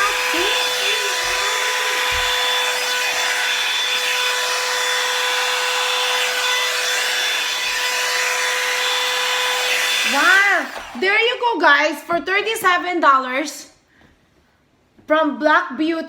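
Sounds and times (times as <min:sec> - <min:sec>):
dryer brush motor whine: 0:00.0 - 0:11.3.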